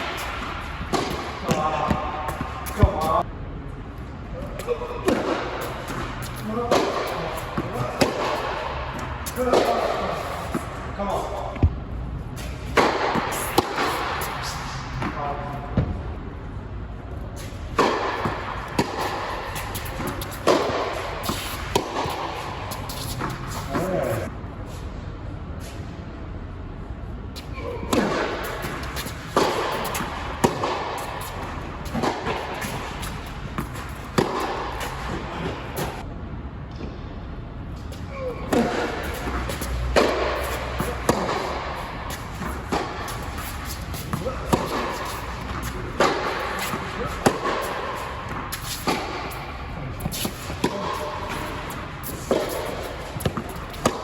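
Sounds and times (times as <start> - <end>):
tennis ball bouncing on court: 0.0 - 3.2, 5.0 - 10.8, 12.4 - 15.2, 17.7 - 24.1, 27.9 - 36.0, 38.5 - 54.0
tennis ball struck by racquets: 0.0 - 3.2, 5.0 - 10.8, 12.4 - 15.2, 17.7 - 24.3, 27.9 - 36.0, 38.5 - 54.0.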